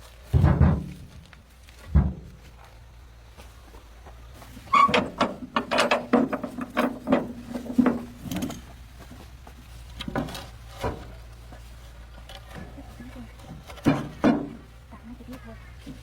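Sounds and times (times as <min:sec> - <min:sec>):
sharp knocks and rattles: 0:00.3 - 0:02.5, 0:04.6 - 0:14.9.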